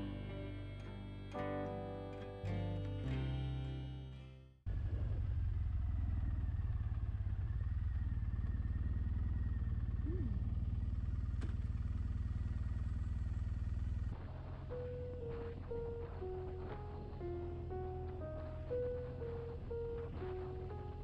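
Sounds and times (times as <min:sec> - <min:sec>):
motorcycle engine running: 0:04.7 - 0:21.0.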